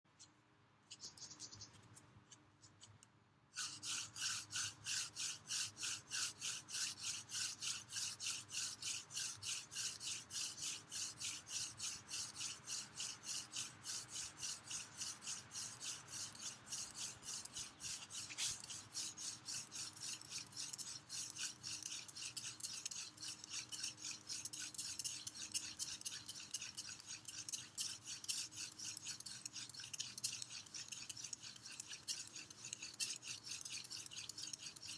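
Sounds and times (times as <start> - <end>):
wooden spindle rasping scrape: 3.6 - 34.9.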